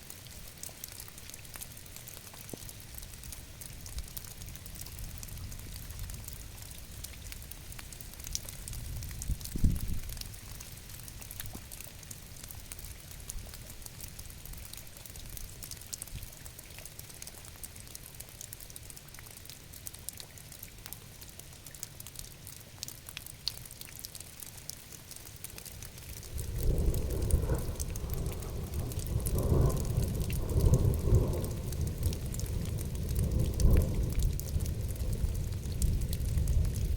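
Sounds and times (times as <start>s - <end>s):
raindrops ticking: 0.0s - 36.9s
steady rain falling: 0.0s - 36.9s
soft low rumble: 25.8s - 36.9s.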